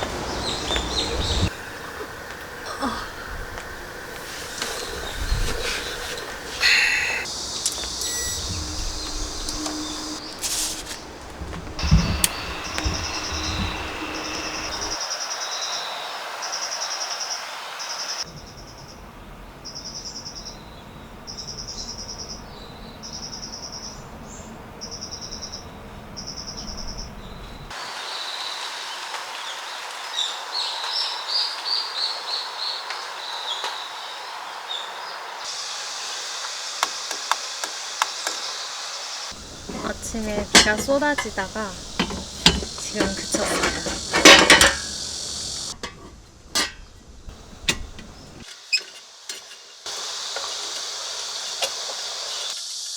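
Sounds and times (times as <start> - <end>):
insect buzzing call: 0.0 - 18.2, 26.2 - 45.8, 49.9 - 52.9
steady hiss: 0.0 - 18.2, 27.7 - 52.9
birds chirping: 0.0 - 18.9, 19.6 - 36.4, 37.0 - 45.8, 46.8 - 48.9.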